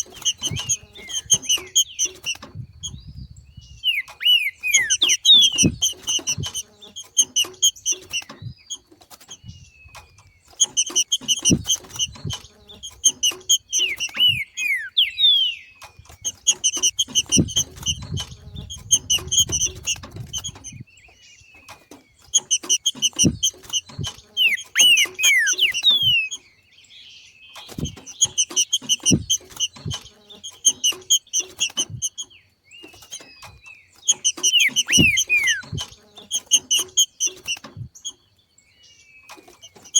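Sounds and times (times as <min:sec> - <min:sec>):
downward-sliding bird whistles: 0:00.0 - 0:08.6, 0:10.6 - 0:20.8, 0:22.4 - 0:26.4, 0:34.1 - 0:37.9
bird chattering calls: 0:00.0 - 0:26.6, 0:27.6 - 0:38.2.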